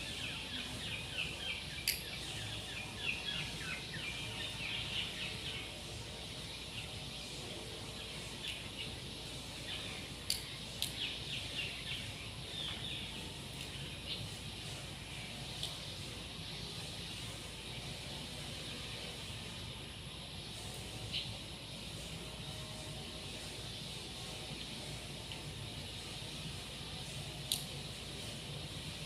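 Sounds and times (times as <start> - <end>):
small birds chirping: 0.0 - 29.0
steady background noise: 0.0 - 29.0
sharp clicks: 1.8 - 2.1, 27.5 - 27.7.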